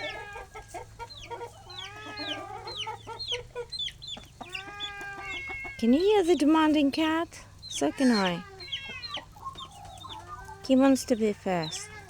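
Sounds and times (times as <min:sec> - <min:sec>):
chicks peeping: 0:00.0 - 0:12.0
hen clucking: 0:00.0 - 0:12.0
cat meowing: 0:04.5 - 0:06.0, 0:07.8 - 0:09.3.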